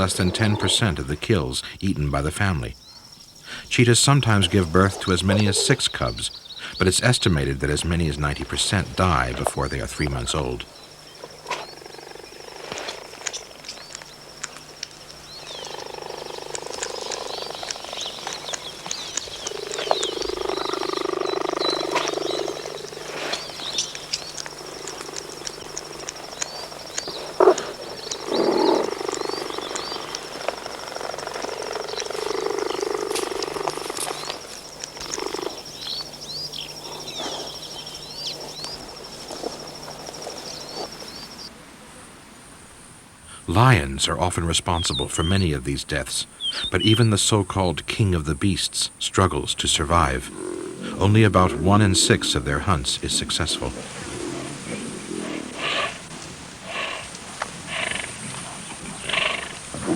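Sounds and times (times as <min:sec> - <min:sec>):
animal croaking calls: 0:00.0 - 0:02.8, 0:03.4 - 0:41.5, 0:49.2 - 0:59.9.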